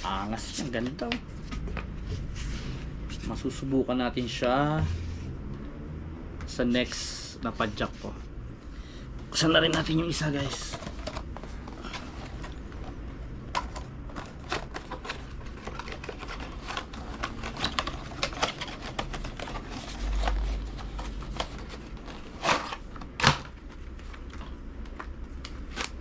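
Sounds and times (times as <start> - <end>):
packaging crinkling and rustling: 9.4 - 26.0.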